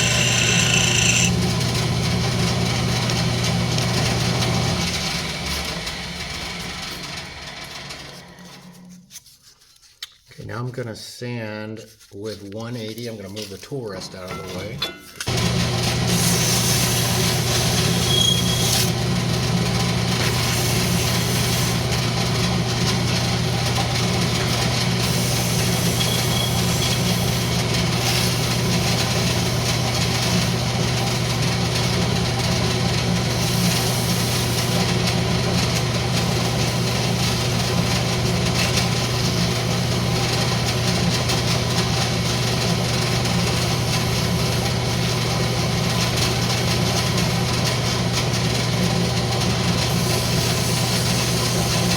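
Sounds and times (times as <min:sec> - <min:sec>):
sandpaper hissing on spinning wood: 0:00.0 - 0:01.3, 0:16.1 - 0:19.0, 0:20.2 - 0:21.8, 0:24.4 - 0:30.4, 0:33.3 - 0:35.5
wood lathe motor humming: 0:00.0 - 0:08.8, 0:15.3 - 0:51.9.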